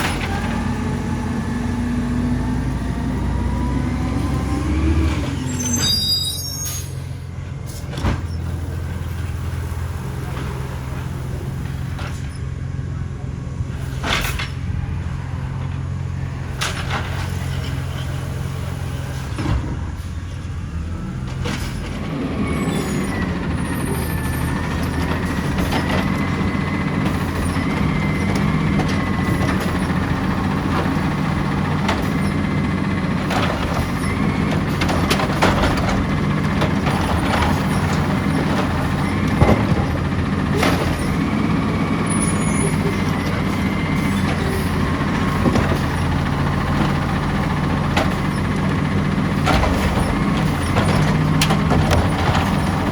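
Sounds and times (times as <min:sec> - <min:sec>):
garbage truck diesel engine: 0:00.0 - 0:52.9
clanks and knocks: 0:23.1 - 0:41.9, 0:42.7 - 0:52.9.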